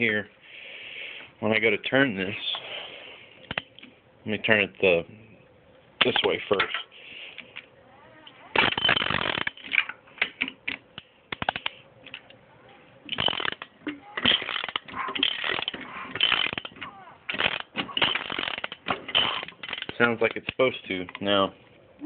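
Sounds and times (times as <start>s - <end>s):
mechanism clicking and rattling: 8.2s - 12.4s, 13.0s - 21.3s.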